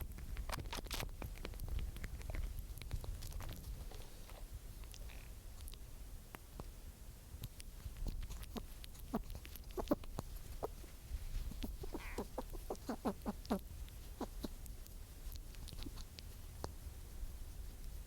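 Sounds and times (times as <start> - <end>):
animal clucking calls: 8.3 - 10.9, 11.5 - 14.7.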